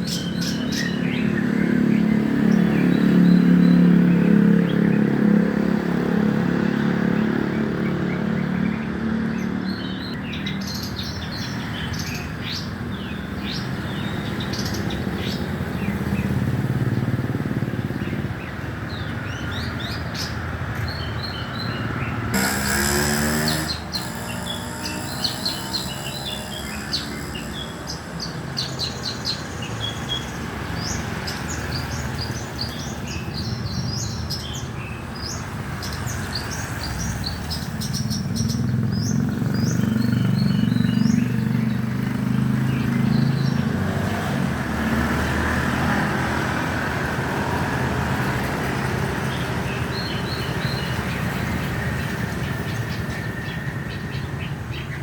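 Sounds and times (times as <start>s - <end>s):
songbird chirping: 19.0s - 45.1s.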